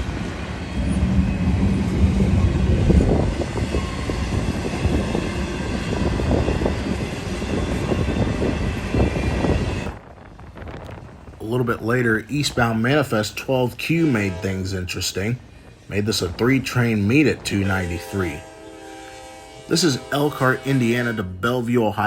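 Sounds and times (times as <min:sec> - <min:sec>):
train cars knocking and clanking: 0:00.0 - 0:11.4
freight train rolling past: 0:00.0 - 0:22.0.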